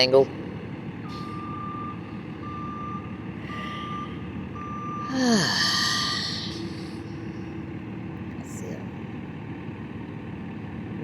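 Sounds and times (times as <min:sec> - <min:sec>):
truck engine rumble: 0:00.0 - 0:11.0
truck reversing alarm beeping: 0:00.7 - 0:07.9.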